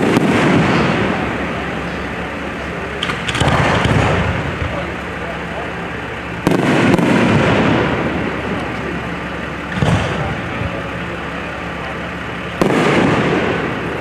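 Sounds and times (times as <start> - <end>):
long rolling rumble: 0.0 - 14.0
fireworks shells bursting: 2.8 - 5.1.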